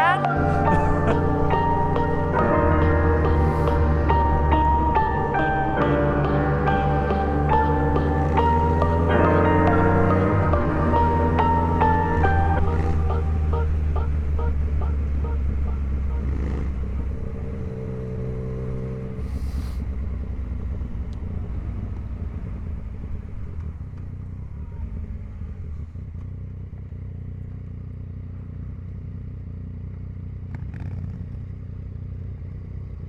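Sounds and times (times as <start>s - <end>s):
motorcycle engine rumbling: 0.0s - 33.0s.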